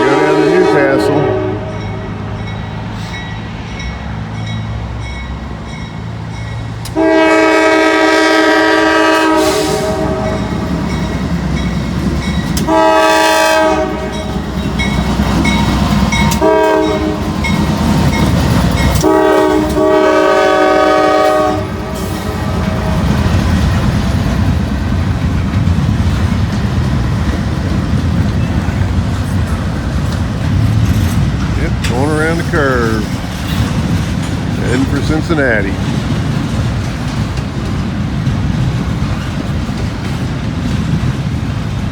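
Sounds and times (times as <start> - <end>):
train horn blasts: 0.0 - 2.2, 6.9 - 10.6, 12.6 - 14.3, 15.5 - 17.5, 18.9 - 23.4
train wheels rumbling on rails: 0.0 - 41.9.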